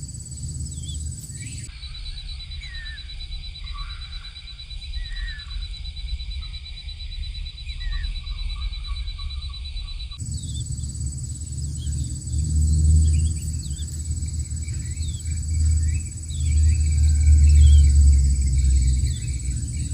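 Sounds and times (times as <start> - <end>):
low rumble: 0.0 - 1.7, 9.8 - 19.9
high insect drone: 0.0 - 19.9.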